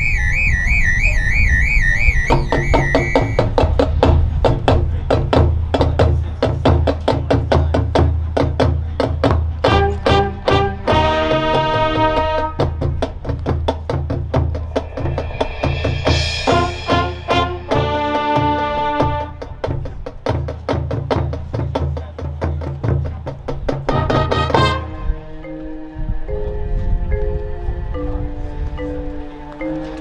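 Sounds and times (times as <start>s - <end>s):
drumline rhythm: 2.2s - 25.3s
marching band playing: 2.2s - 30.0s
cymbal crash: 14.5s - 18.9s.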